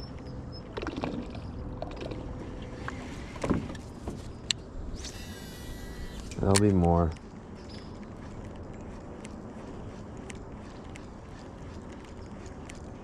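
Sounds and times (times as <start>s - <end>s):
water noise: 0.0s - 4.0s
high steady whir: 4.9s - 6.6s.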